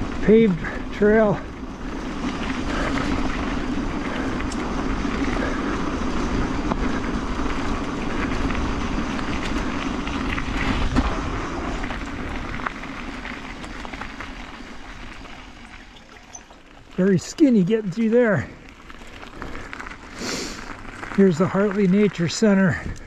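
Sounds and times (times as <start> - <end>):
wind rushing over microphone: 0.0 - 16.0
bike tyres humming on asphalt: 0.0 - 23.0.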